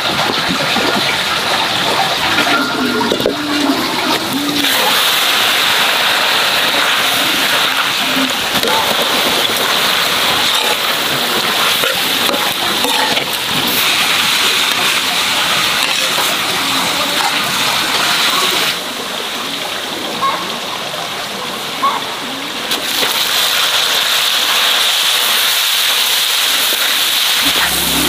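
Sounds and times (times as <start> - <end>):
offal sizzling in a wok: 3.6 - 17.6, 23.2 - 28.0.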